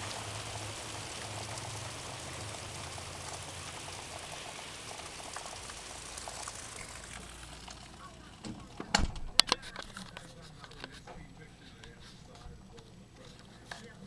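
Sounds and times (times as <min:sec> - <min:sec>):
heavy rain pouring: 0:00.0 - 0:14.0
low steady hum: 0:06.0 - 0:14.0.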